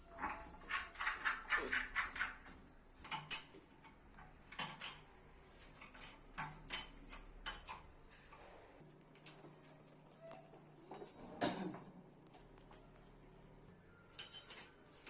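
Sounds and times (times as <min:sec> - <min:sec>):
clicks and knocks on plumbing fittings: 0:05.8 - 0:07.9.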